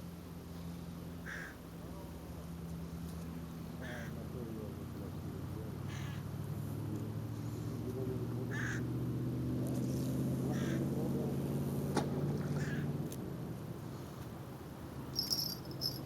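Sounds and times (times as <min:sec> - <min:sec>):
engine drone: 0:00.0 - 0:16.0
harsh bird calls: 0:08.5 - 0:08.9.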